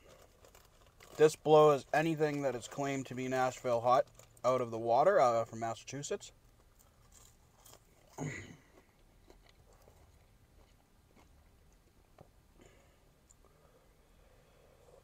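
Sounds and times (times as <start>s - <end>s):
man chewing quietly: 6.6s - 15.0s.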